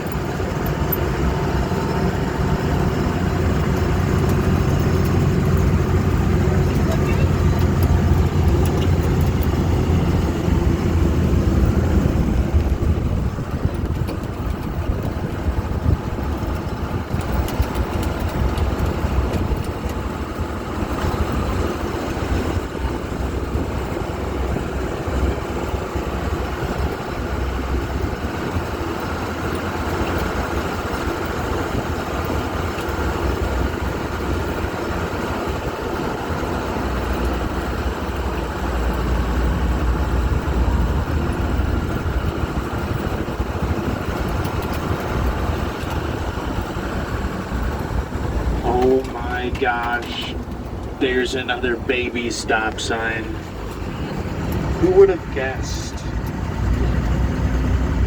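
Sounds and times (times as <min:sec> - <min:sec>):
boat engine low rumble: 0:00.0 - 0:58.0.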